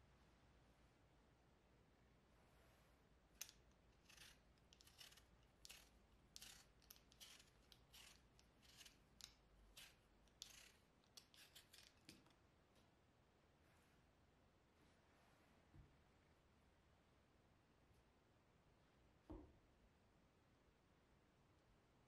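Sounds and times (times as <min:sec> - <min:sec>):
peeler scraping potato: 0:03.4 - 0:12.3.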